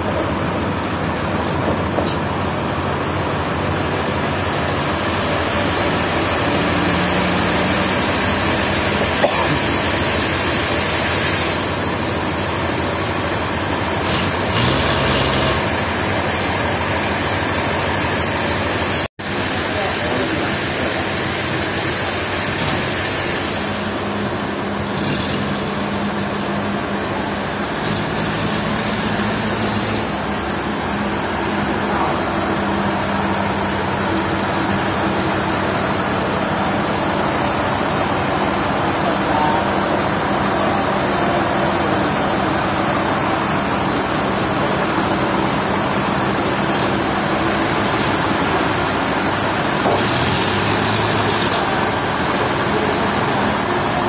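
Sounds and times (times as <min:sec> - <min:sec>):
sawmill machinery humming: 0:00.0 - 0:54.0.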